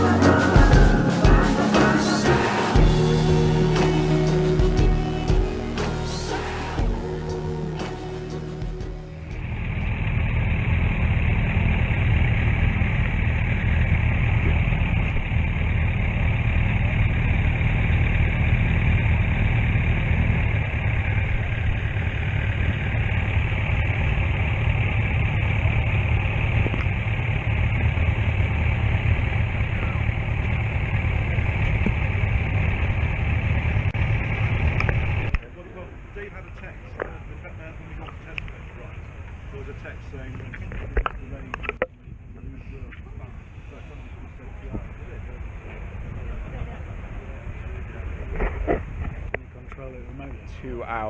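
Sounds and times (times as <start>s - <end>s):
motorcycle engine running: 0.0s - 9.9s.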